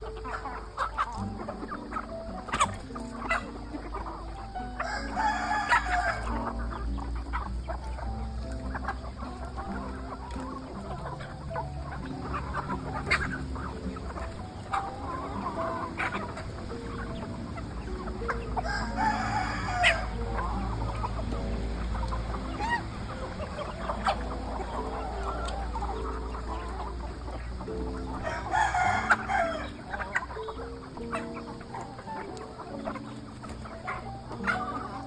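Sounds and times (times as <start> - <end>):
chickens clucking: 0.0 - 35.0
rooster crowing: 4.8 - 6.6, 18.6 - 21.6, 28.0 - 30.1.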